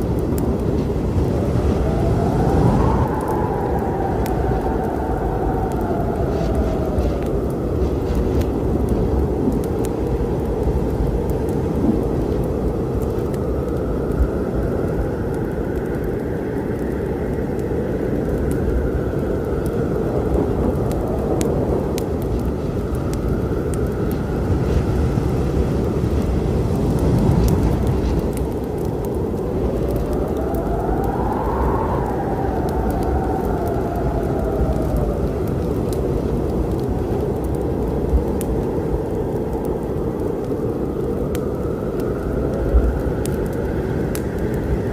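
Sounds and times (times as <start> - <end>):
storm rumble: 0.0 - 44.9
wood fire crackling: 0.0 - 44.9.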